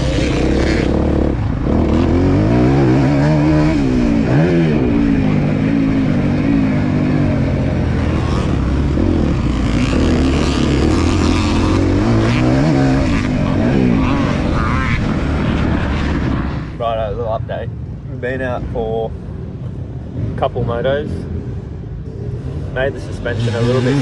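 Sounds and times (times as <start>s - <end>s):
dirt bike engine revving: 0.0s - 16.8s, 22.1s - 24.0s.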